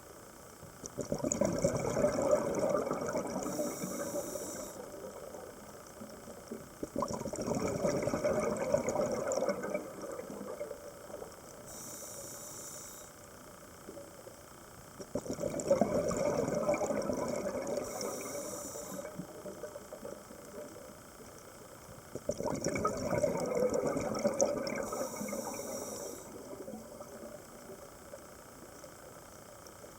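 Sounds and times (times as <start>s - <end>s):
exhaled bubbles gurgling underwater: 0.8s - 12.1s, 15.0s - 29.9s
regulator inhale hiss: 3.3s - 5.8s, 11.5s - 13.4s, 17.6s - 19.6s, 24.7s - 28.2s.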